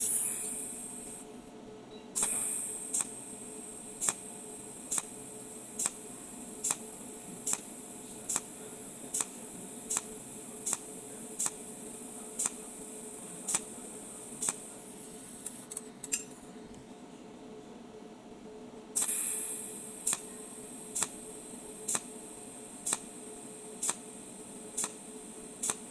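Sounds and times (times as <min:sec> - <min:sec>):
machine hum and high whine: 0:00.0 - 0:25.9
welding machine sharp ticks: 0:02.2 - 0:03.2, 0:04.0 - 0:04.2, 0:04.9 - 0:05.2, 0:05.8 - 0:06.0, 0:06.6 - 0:06.8, 0:07.5 - 0:07.7, 0:08.3 - 0:08.5, 0:09.1 - 0:11.6, 0:12.4 - 0:12.6, 0:13.5 - 0:13.7, 0:14.4 - 0:14.6, 0:19.0 - 0:20.3, 0:21.0 - 0:21.2, 0:21.9 - 0:22.1, 0:22.8 - 0:23.1, 0:23.8 - 0:24.0, 0:24.8 - 0:25.0, 0:25.6 - 0:25.9.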